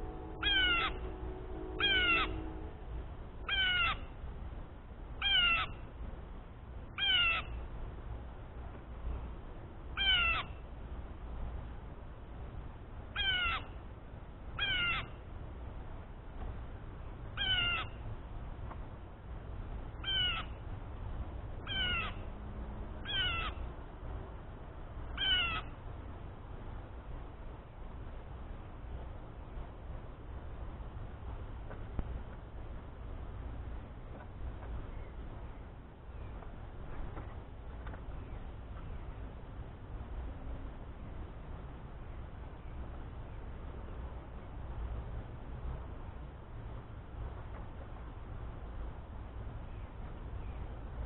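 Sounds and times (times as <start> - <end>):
blue jay harsh call: 0.0 - 4.2, 5.2 - 5.9, 7.0 - 7.6, 10.0 - 10.6, 13.1 - 13.8, 14.6 - 15.2, 17.4 - 18.0, 20.0 - 20.6, 21.6 - 22.3, 23.0 - 23.7, 25.1 - 25.8
low steady rumble: 0.0 - 51.0.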